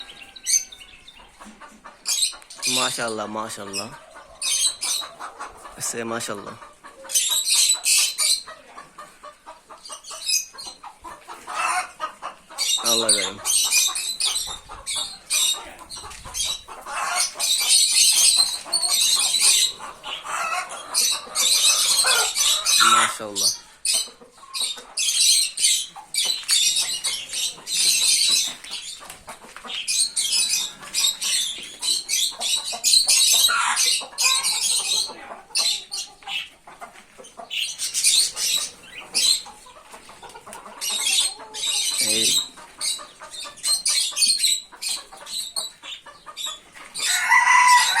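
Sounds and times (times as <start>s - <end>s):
birds chattering and chirping: 0.0s - 48.0s
rooster crowing: 47.0s - 48.0s.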